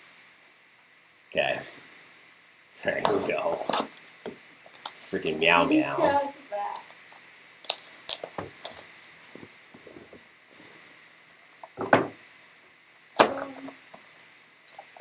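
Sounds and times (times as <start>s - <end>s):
card wrappers crinkling: 4.7s - 6.0s, 7.0s - 9.9s
knocks on a table: 11.8s - 12.2s.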